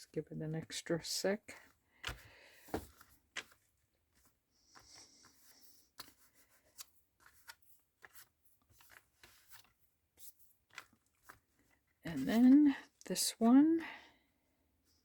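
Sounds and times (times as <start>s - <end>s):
paper and card handling: 2.0s - 12.8s.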